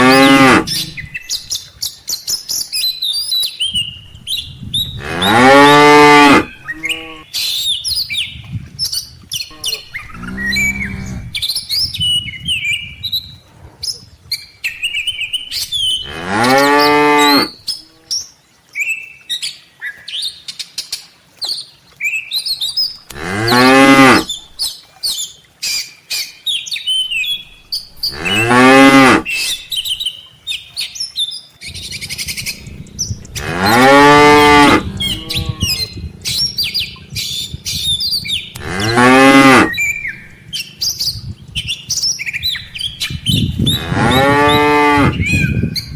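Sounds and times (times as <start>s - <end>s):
cattle mooing: 0.0s - 1.0s, 5.0s - 7.2s, 9.5s - 11.4s, 16.0s - 18.1s, 23.1s - 24.3s, 28.0s - 29.5s, 32.1s - 36.4s, 38.5s - 40.1s, 43.7s - 45.2s
high bird chirps: 31.6s - 39.0s.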